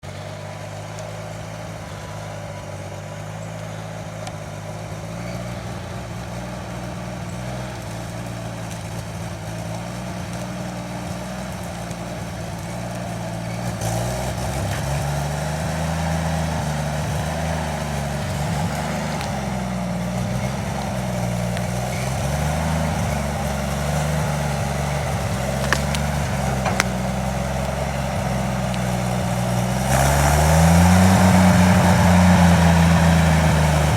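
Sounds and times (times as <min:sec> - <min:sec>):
truck engine idling: 0:00.0 - 0:33.9
faint clicks: 0:25.0 - 0:29.0.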